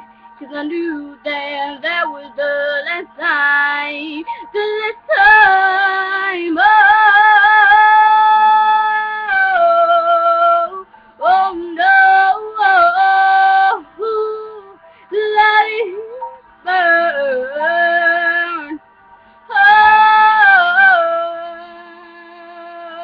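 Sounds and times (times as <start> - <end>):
singer breathing: 0.0 - 0.4, 14.8 - 15.1.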